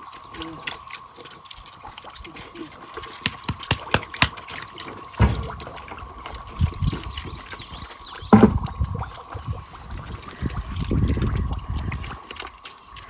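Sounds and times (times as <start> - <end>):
pigs chomping wet feed: 0.0 - 13.0
low thuds: 5.2 - 7.0, 8.3 - 8.8.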